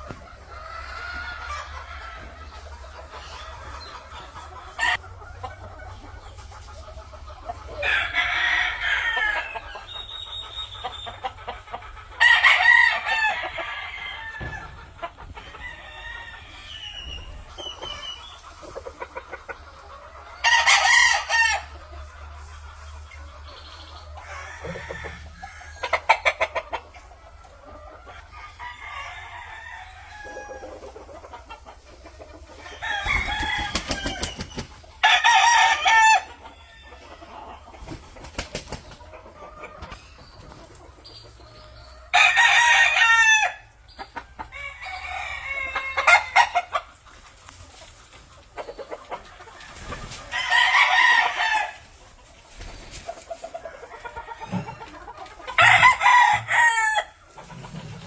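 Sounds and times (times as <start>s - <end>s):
chickens clucking: 0.0s - 58.0s
roosters crowing: 7.7s - 11.4s, 12.0s - 18.3s, 20.3s - 21.8s, 24.0s - 26.8s, 28.1s - 31.2s, 32.4s - 38.8s, 42.0s - 46.9s, 49.4s - 58.0s.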